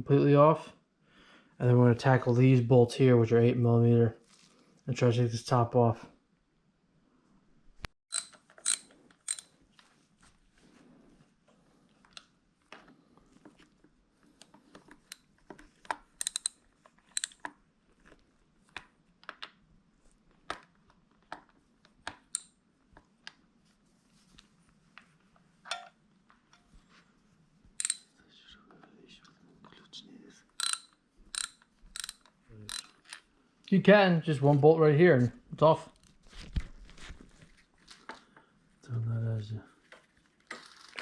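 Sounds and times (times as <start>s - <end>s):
socket wrench and bolts clinking: 8.1s - 9.5s, 16.2s - 17.4s, 27.8s - 28.1s, 30.6s - 33.2s.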